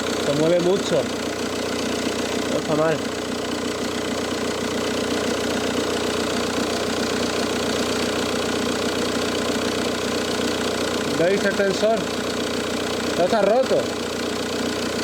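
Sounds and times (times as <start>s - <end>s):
car engine idling: 0.0s - 15.0s
drive belt running: 0.0s - 15.0s.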